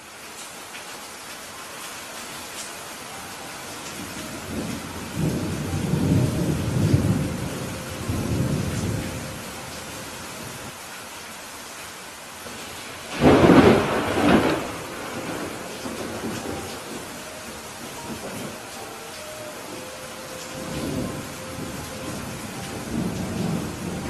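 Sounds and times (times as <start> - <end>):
steady rain: 0.0 - 24.0
rolling thunder: 4.3 - 9.6, 13.1 - 18.7, 19.7 - 24.0
sharp thunderclap: 13.1 - 17.0.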